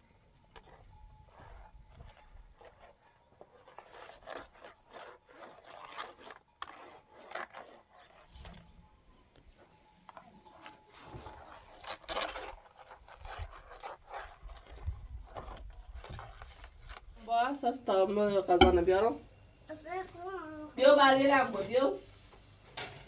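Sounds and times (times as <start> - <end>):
irregular scraping and rubbing: 0.5 - 19.3
sharp scrapes or knocks: 18.6 - 19.2.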